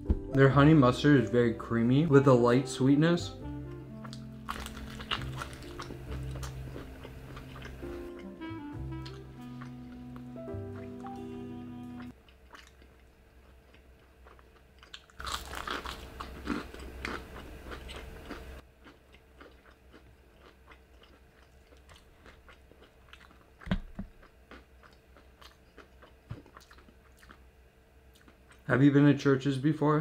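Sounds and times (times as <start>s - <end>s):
crunching bites of fried chicken: 4.0s - 7.9s, 13.6s - 23.6s
quiet chewing: 4.0s - 27.5s, 28.1s - 28.7s.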